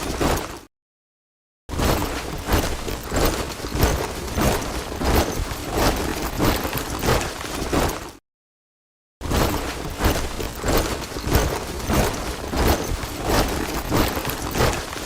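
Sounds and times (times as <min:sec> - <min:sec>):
soldiers marching in step: 0:01.9 - 0:08.2, 0:09.4 - 0:15.0.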